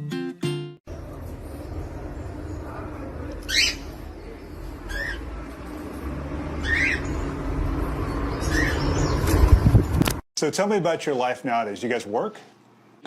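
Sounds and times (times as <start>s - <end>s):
bird chirping: 1.8s - 5.4s, 6.5s - 9.8s.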